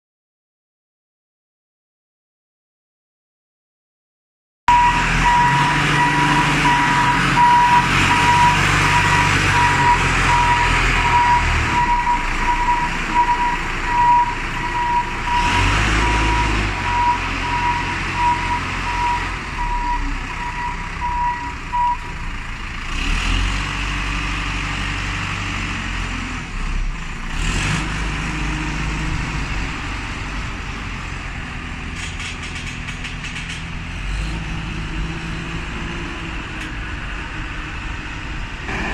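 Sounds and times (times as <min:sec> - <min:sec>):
reversing alarm beeping: 0:04.7 - 0:22.2
heavy diesel machinery running: 0:04.7 - 0:38.9.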